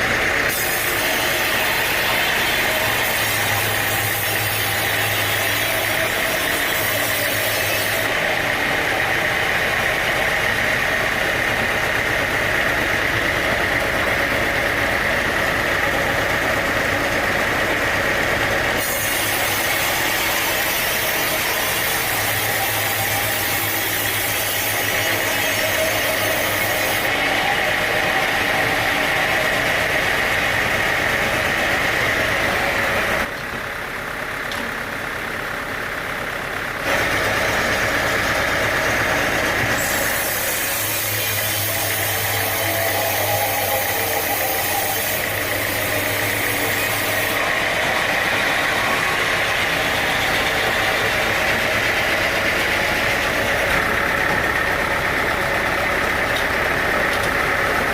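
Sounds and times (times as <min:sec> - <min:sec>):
sawmill machinery running: 0:00.0 - 0:57.9.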